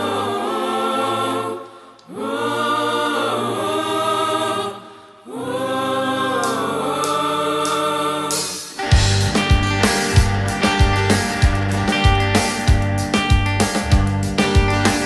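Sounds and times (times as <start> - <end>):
wordless choir-like voices: 0.0 - 9.0.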